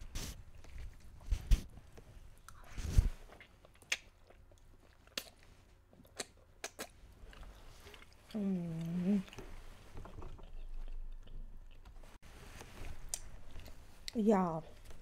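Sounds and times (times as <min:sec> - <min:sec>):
wet chewing smacks: 0:03.3 - 0:09.5.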